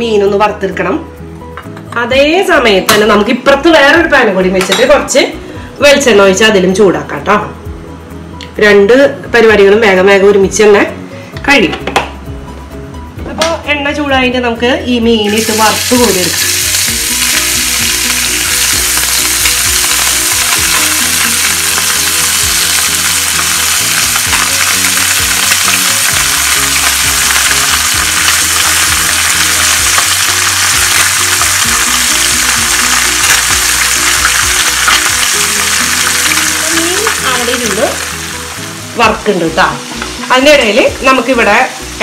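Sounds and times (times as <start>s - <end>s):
background music: 0.0s - 42.0s
fish sizzling in a pan: 15.2s - 41.2s.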